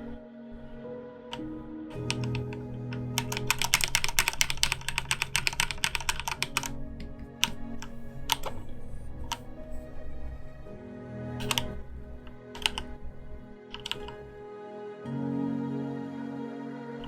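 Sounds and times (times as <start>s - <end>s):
keyboard typing: 1.3s - 10.1s, 11.4s - 14.4s.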